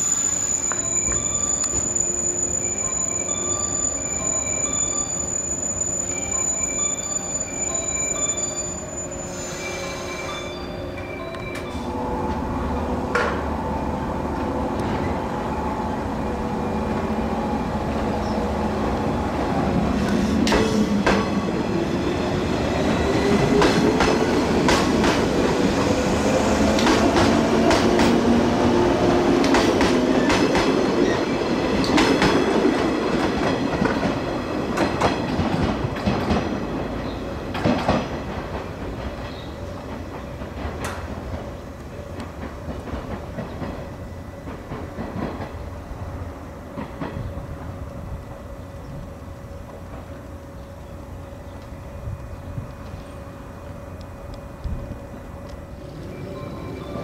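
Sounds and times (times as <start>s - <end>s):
train wheels clacking on rail joints: 22.8s - 26.0s, 26.6s - 45.7s, 46.7s - 47.8s.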